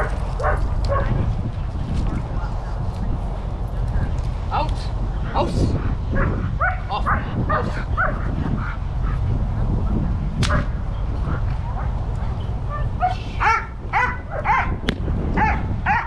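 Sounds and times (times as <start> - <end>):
dog barking: 0.0 - 1.2, 6.2 - 9.2, 10.5 - 10.8, 12.7 - 14.8, 15.4 - 16.0
wind rumble on microphone: 0.0 - 16.0
sharp crack: 10.4 - 10.7, 14.8 - 15.1.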